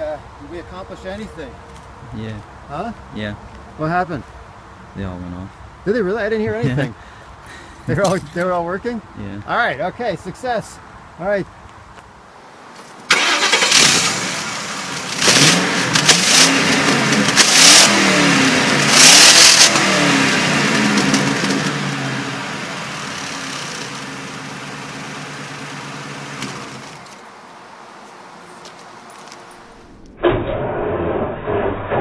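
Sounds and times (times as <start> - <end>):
car engine revving and idling: 13.1 - 27.1.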